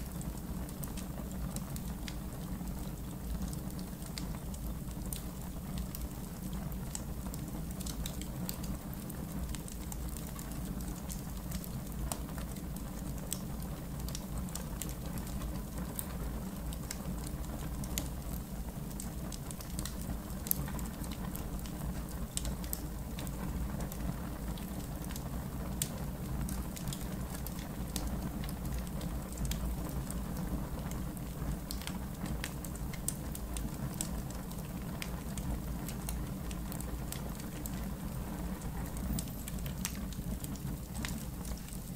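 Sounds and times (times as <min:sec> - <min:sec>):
campfire crackling and popping: 0:00.0 - 0:41.9.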